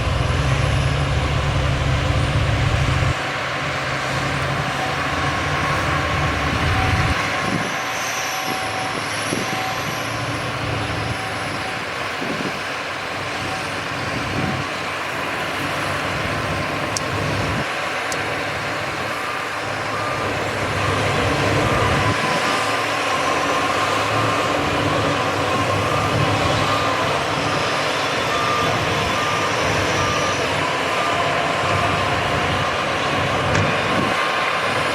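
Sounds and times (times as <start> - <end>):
low-pitched reversing alarm beeping: 0.0 - 3.4, 4.1 - 11.9, 16.4 - 34.9
heavy diesel machinery running: 0.0 - 34.9
high-pitched reversing alarm beeping: 4.2 - 12.0, 18.2 - 34.9.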